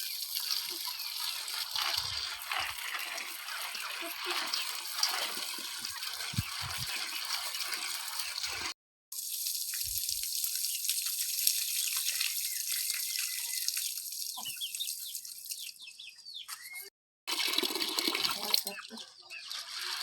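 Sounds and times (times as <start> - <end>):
running water hiss: 0.0 - 15.7
water drips: 0.0 - 15.9
water splashing and trickling: 0.0 - 20.0
bird chirps: 11.6 - 16.9, 18.7 - 19.7.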